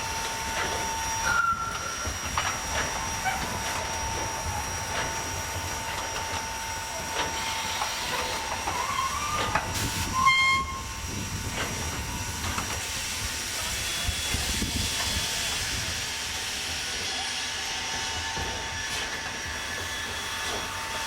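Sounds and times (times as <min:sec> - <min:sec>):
steam locomotive hissing: 0:00.0 - 0:21.0
steam whistle blast: 0:08.8 - 0:11.0.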